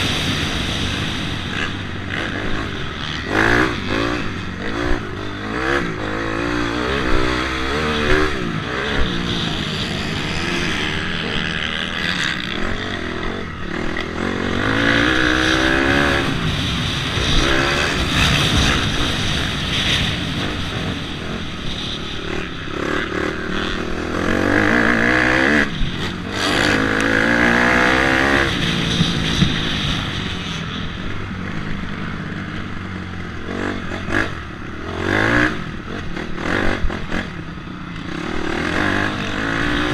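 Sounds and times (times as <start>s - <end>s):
dirt bike engine revving: 0.0s - 37.4s, 38.0s - 39.9s.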